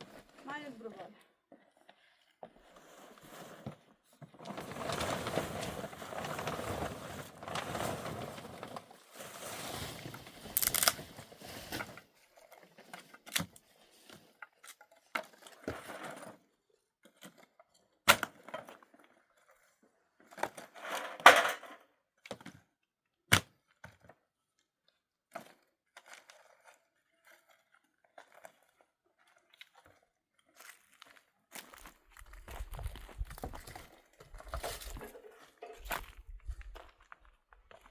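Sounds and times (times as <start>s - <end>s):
rustling and scraping: 0.0s - 14.6s, 31.7s - 37.9s
crunching: 9.9s - 11.1s.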